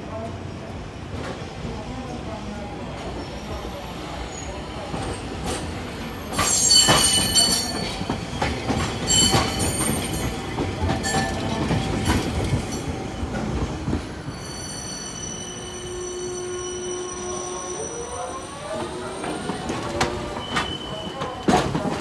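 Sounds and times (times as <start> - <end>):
tram wheels knocking on rail joints: 5.0 - 14.0
high wheel squeal: 14.3 - 19.6.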